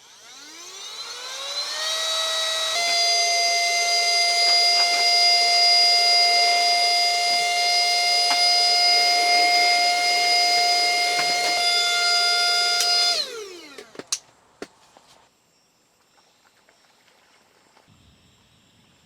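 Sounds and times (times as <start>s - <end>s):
electric motor tool whining: 0.0s - 14.2s.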